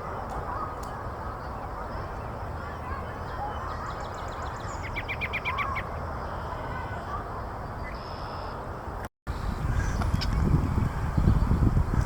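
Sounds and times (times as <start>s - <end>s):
songbirds twittering: 0.0s - 8.7s, 9.3s - 12.0s.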